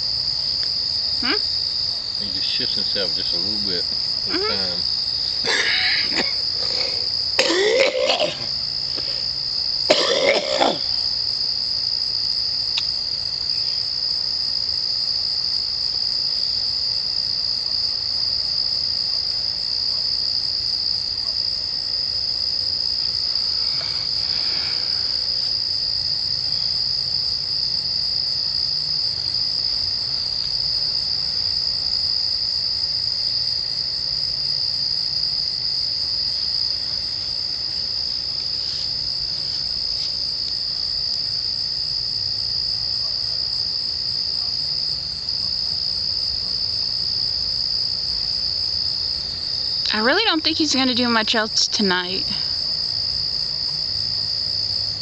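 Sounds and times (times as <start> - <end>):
crickets trilling: 0.0 - 55.0
person coughing: 4.3 - 4.6, 5.5 - 8.5, 9.9 - 10.9.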